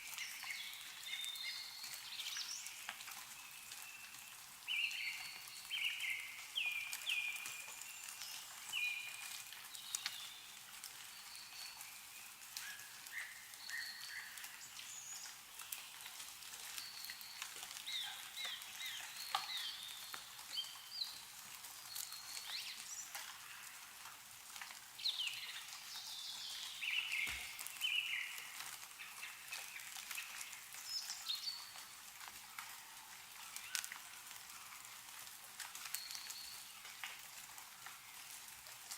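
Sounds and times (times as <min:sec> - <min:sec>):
small birds chirping: 0:00.0 - 0:37.3
meltwater dripping from trees: 0:00.0 - 0:38.9.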